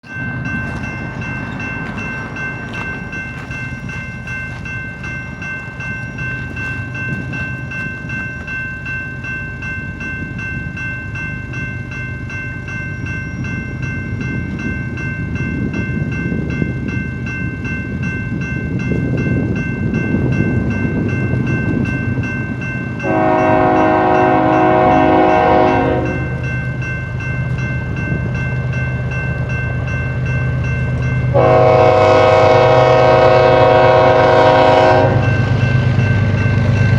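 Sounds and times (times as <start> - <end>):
steady high tone: 0.0 - 36.9
diesel locomotive rumble: 13.4 - 36.9
train horn blast: 23.0 - 26.4, 31.3 - 35.3.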